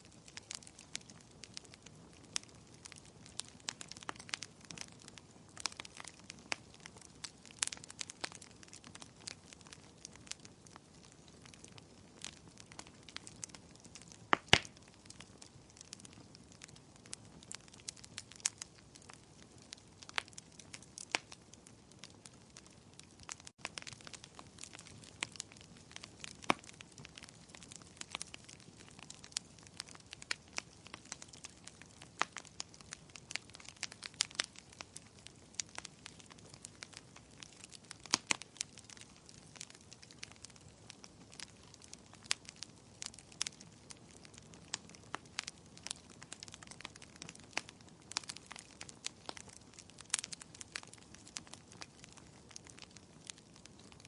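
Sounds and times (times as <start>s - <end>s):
faint hiss of rain: 0.0s - 54.0s
wood fire crackling and popping: 0.0s - 54.0s.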